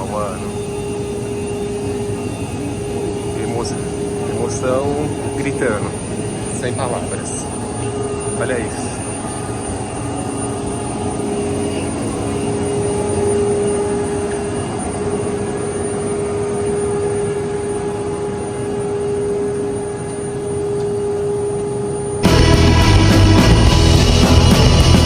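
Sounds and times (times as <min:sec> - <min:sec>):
aircraft machinery humming: 0:00.0 - 0:25.0
loud rock music: 0:22.2 - 0:25.0.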